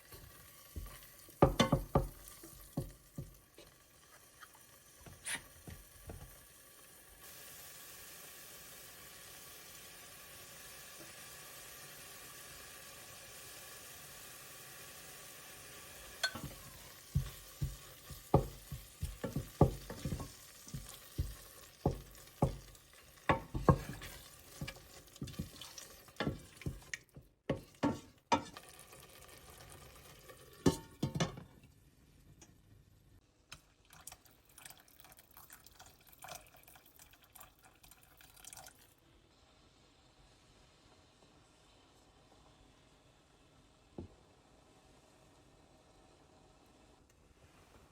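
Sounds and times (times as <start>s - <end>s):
dishes and utensils clinking: 16.2s - 17.7s.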